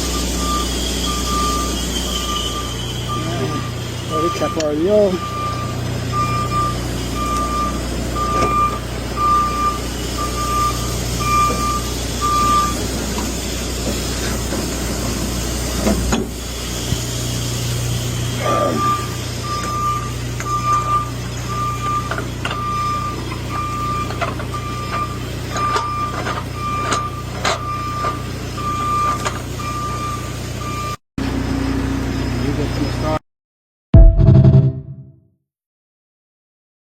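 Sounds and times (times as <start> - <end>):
electronic beeping alarm: 0.0 - 12.8, 18.4 - 31.0
truck engine drone: 0.0 - 33.2.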